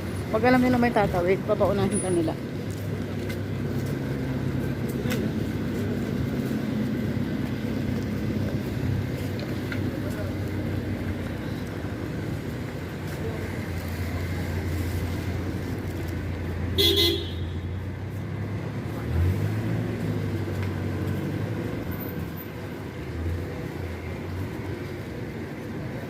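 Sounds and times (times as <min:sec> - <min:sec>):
vehicle engines running: 0:00.0 - 0:26.0
car horn toot: 0:16.8 - 0:17.6
vehicle pulling past: 0:18.0 - 0:25.0.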